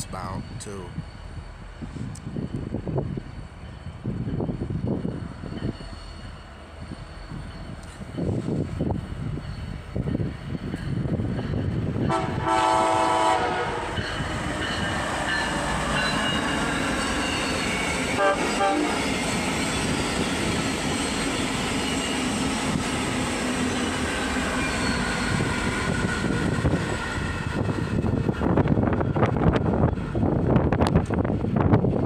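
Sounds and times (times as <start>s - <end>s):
train rolling by: 0.0s - 32.0s
train horn: 12.1s - 14.0s, 18.2s - 19.1s.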